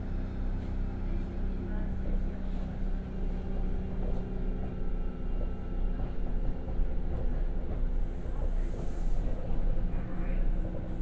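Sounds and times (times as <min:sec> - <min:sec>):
electric train rumble: 0:00.0 - 0:11.0.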